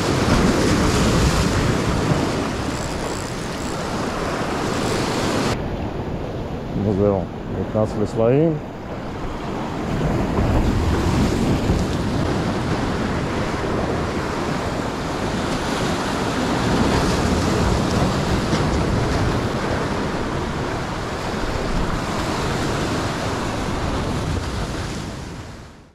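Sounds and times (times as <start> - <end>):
sea surf on rocky shore: 0.0 - 25.9.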